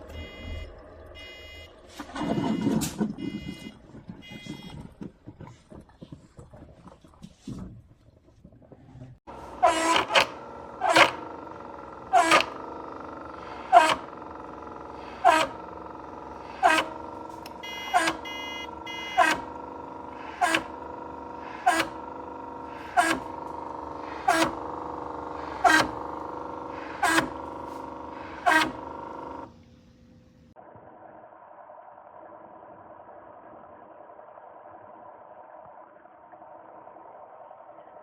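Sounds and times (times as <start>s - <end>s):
machine humming: 0.0s - 4.9s, 9.3s - 30.6s.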